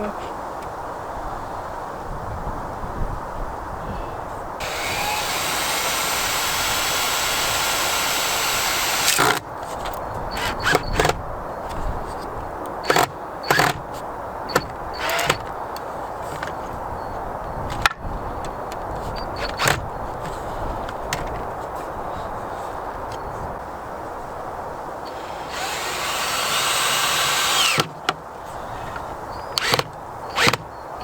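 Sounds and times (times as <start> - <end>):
power tool high whine: 4.6 - 9.4, 25.0 - 27.9.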